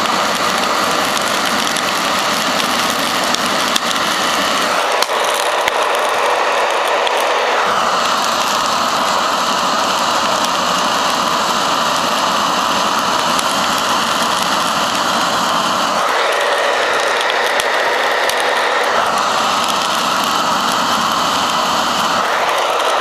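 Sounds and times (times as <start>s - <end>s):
hair dryer blowing air: 0.0s - 23.0s.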